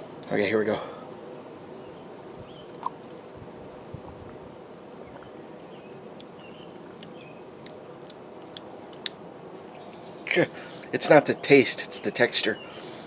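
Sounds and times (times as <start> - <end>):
low background hum: 0.0 - 13.0
man sipping and swallowing: 2.7 - 3.2
mouth clicks: 2.7 - 3.2, 7.0 - 10.1.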